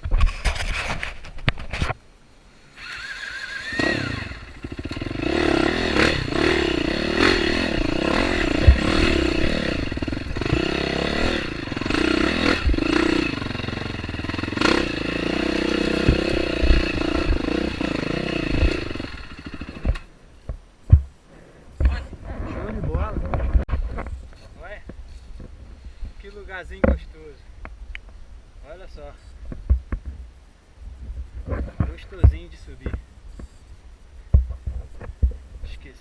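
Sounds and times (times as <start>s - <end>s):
dirt bike engine revving: 2.8s - 20.1s
bike knocking over rough ground: 19.5s - 21.1s.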